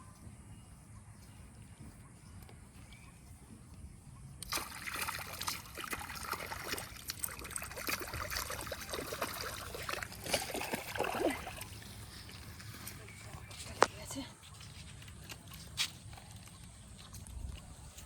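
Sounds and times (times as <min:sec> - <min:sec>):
water splashing and sloshing: 0:04.4 - 0:12.9.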